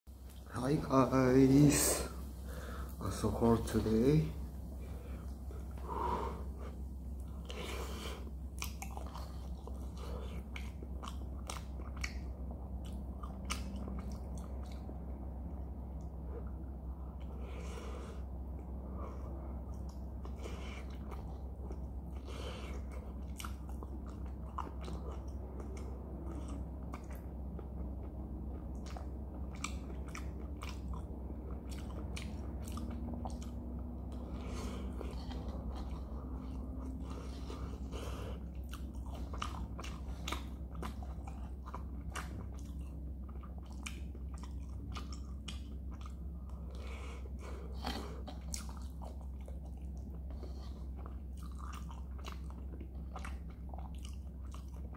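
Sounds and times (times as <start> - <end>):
steady low hum: 0.1 - 54.9
crunchy chewing: 4.8 - 15.0, 16.0 - 54.9.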